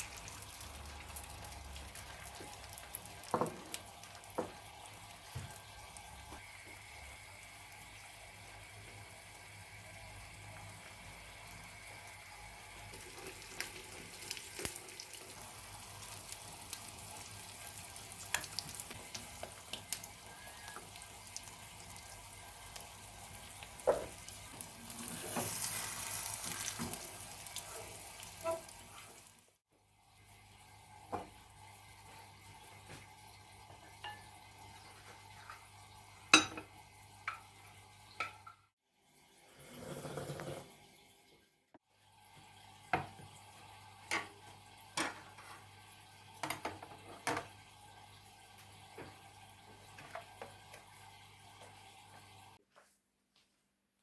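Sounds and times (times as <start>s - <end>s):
steady kitchen hiss: 0.0s - 38.5s.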